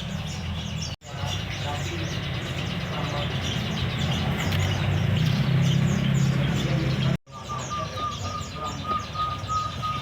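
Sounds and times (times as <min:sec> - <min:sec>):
songbirds chirping rapidly: 0:00.0 - 0:10.0.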